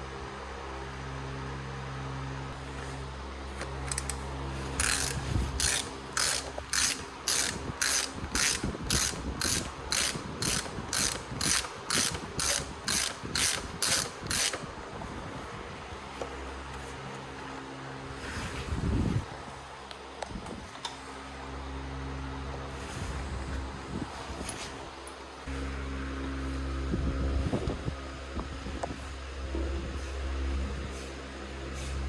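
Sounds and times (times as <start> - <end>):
low steady hum: 0.0 - 32.0
ratchet wrench clicking: 3.8 - 4.2, 4.8 - 14.7.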